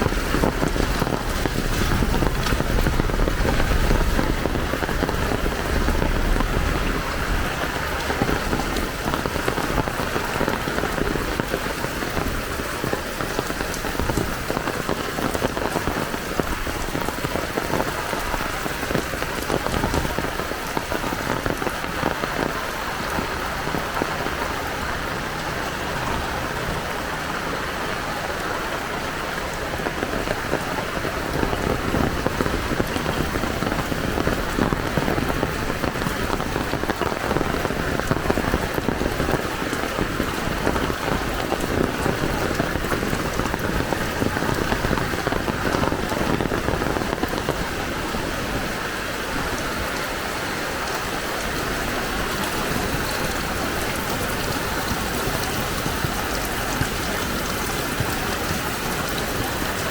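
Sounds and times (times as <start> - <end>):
heavy rain splashing: 0.0 - 59.9.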